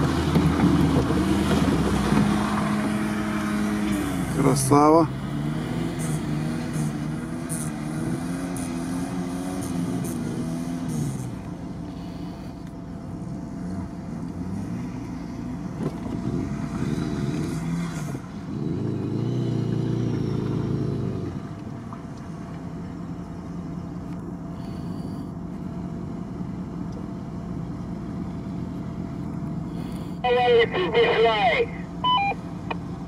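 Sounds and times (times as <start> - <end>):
car engine revving: 0.0 - 11.5, 13.6 - 21.6.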